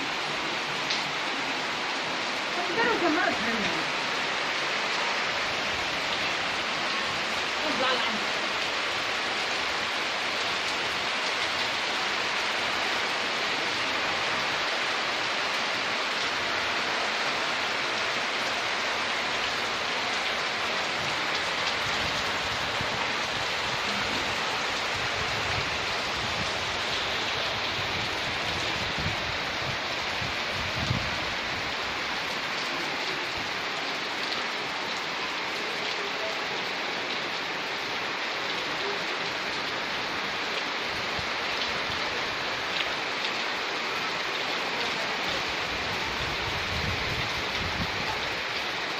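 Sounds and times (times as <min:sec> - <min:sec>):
heavy rain hissing: 0:00.0 - 0:48.9.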